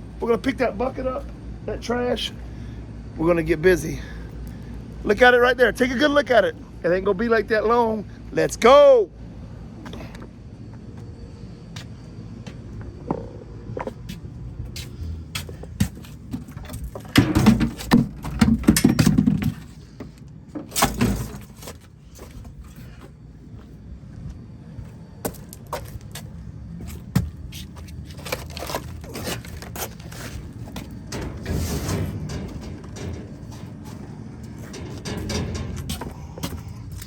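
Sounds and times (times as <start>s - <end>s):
trash and bucket clattering: 15.8s - 21.9s, 28.0s - 37.0s
rumbling: 27.3s - 37.0s.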